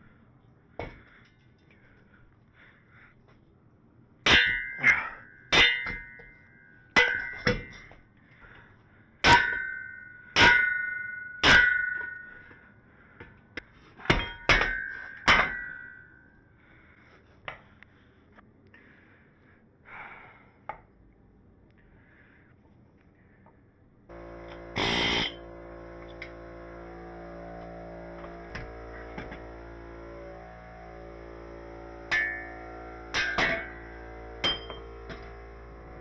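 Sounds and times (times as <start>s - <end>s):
hammer blows on steel tube: 24.1s - 36.0s.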